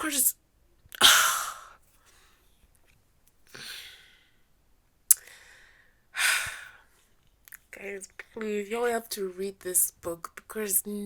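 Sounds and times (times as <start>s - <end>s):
woman breathing out heavily: 5.2s - 6.9s.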